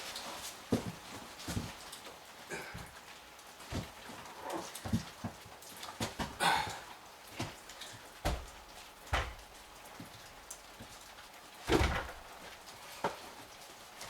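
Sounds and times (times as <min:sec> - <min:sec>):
rain pattering: 0:00.0 - 0:14.0
irregular knocks: 0:08.2 - 0:09.6.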